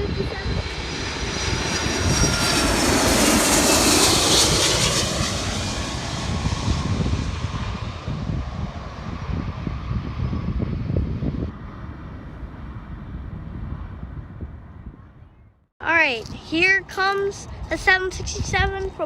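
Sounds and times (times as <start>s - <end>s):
jet engine roar: 0.0s - 15.2s
wind buffeting microphone: 0.0s - 19.0s.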